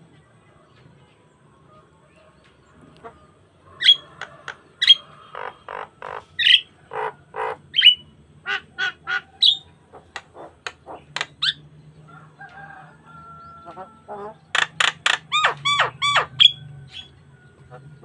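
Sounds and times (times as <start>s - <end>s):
myna squawking and chattering: 3.8s - 11.6s, 13.8s - 16.6s.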